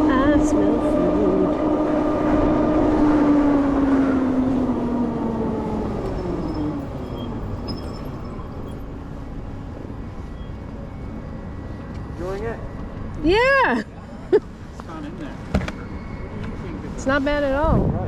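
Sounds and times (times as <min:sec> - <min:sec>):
wind and road rush: 0:00.0 - 0:18.0.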